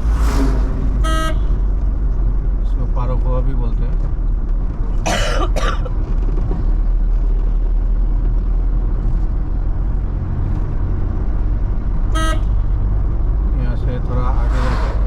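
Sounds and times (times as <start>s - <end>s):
van engine and road rumble: 0.0s - 15.0s
short horn beep: 1.0s - 1.6s.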